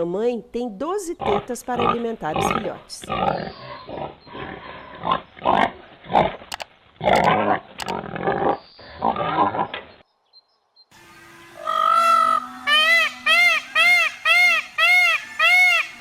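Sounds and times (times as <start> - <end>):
pigs grunting: 1.2 - 6.4, 7.0 - 9.9.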